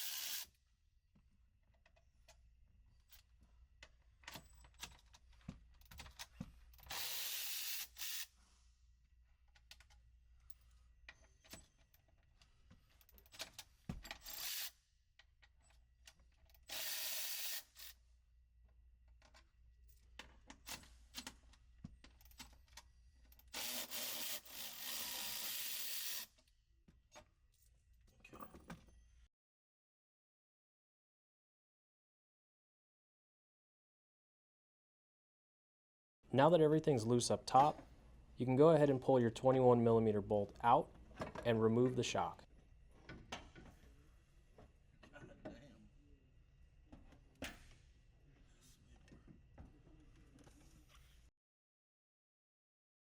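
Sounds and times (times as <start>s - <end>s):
power ratchet spinning: 0.0s - 0.4s, 14.2s - 14.7s, 16.7s - 17.8s, 23.5s - 26.3s.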